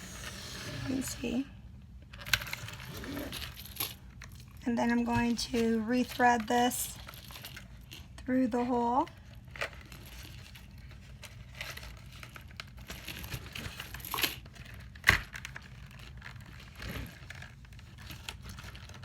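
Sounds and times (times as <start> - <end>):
plastic rustling and clicks: 9.0 - 19.0.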